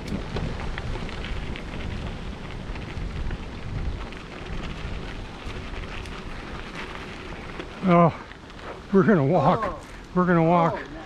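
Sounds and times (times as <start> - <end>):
bicycle tyres crunching on trail: 0.0 - 11.0.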